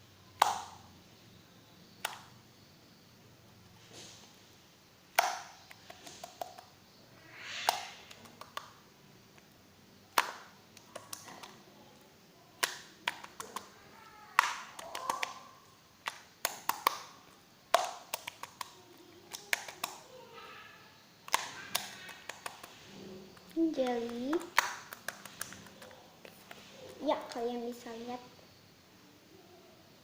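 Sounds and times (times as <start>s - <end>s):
slime clicking and popping: 0.4s - 0.8s, 5.1s - 6.7s, 10.1s - 11.6s, 12.6s - 13.7s, 14.3s - 15.4s, 16.0s - 20.0s, 21.2s - 26.7s.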